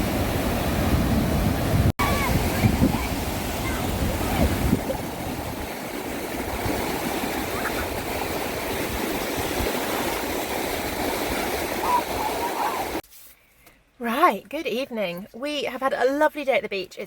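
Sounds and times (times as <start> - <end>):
sea waves washing onto beach: 0.0 - 13.0.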